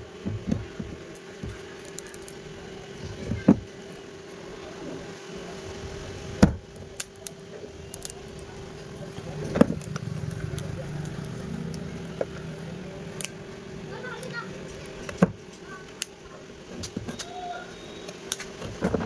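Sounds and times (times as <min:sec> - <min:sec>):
low hum: 0:04.4 - 0:18.8.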